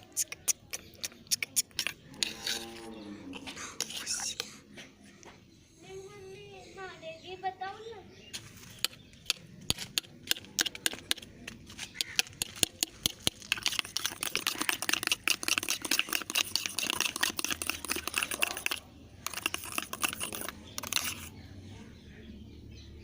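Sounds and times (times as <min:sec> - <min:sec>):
sticky slime crackling: 0:09.8 - 0:21.3.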